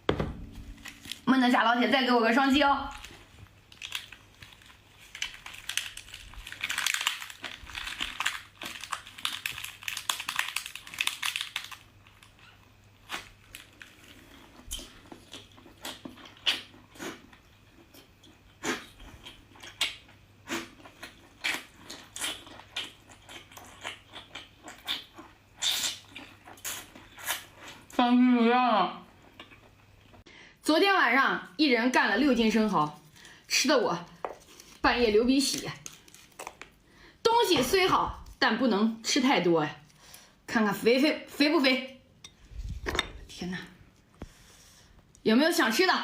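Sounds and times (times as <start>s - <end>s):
person chewing food: 13.1s - 27.8s.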